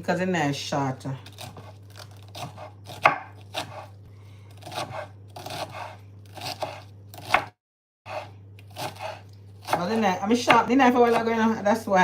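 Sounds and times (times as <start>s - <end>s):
knife cutting through food: 1.3s - 4.0s, 4.6s - 7.5s, 8.1s - 9.8s.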